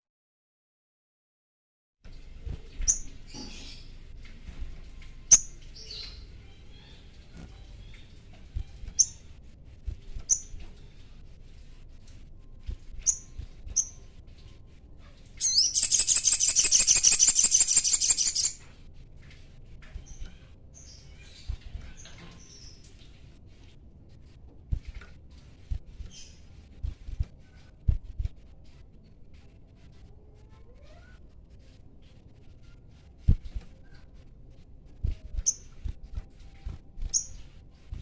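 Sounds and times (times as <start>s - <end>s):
bird chirping: 13.0s - 14.1s, 15.4s - 18.6s
bird fast high trill: 15.4s - 18.6s.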